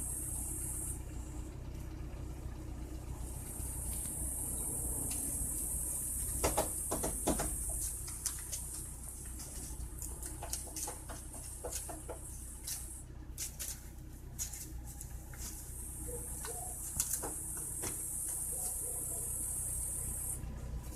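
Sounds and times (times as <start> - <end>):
low hum and hiss: 0.0 - 20.9
kitten paws tapping and scratching: 6.2 - 19.2.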